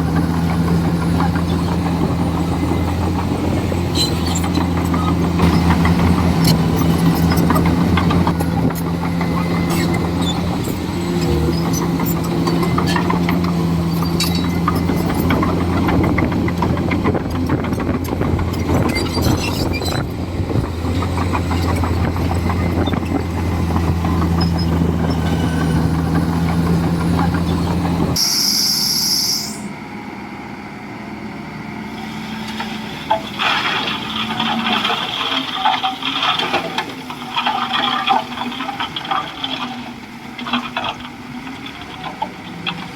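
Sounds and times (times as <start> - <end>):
bulldozer diesel engine running: 0.0 - 42.9
high squeal: 3.8 - 15.4, 24.2 - 26.0, 27.4 - 29.8
metal clanks and knocks: 4.0 - 28.2.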